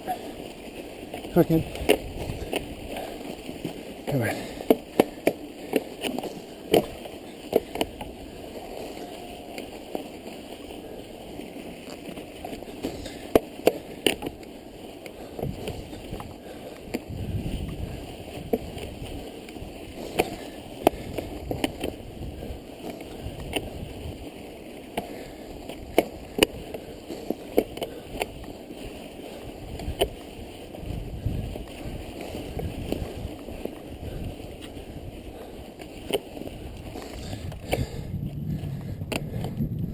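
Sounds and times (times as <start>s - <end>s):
tyres crunching in snow: 0.0s - 39.9s
wind rumble on microphone: 1.4s - 3.8s, 15.2s - 24.6s, 25.2s - 39.9s
bike clicks and knocks: 1.6s - 39.9s.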